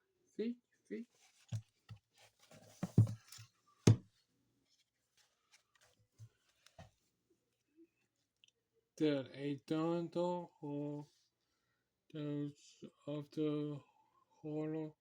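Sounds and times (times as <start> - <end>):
book thumps and rustles: 1.3 - 4.1.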